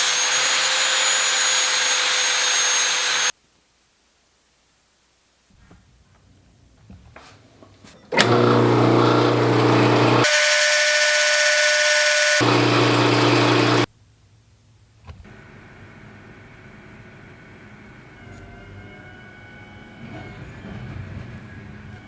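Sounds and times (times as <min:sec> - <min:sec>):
electric power tool running: 0:00.0 - 0:03.3, 0:08.2 - 0:13.9.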